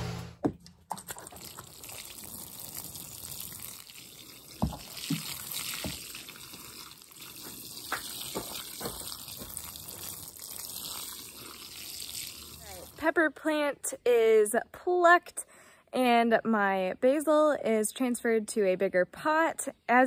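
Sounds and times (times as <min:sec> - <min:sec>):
watering can sprinkling water: 0:00.9 - 0:13.0
sharp water drips: 0:01.0 - 0:13.0.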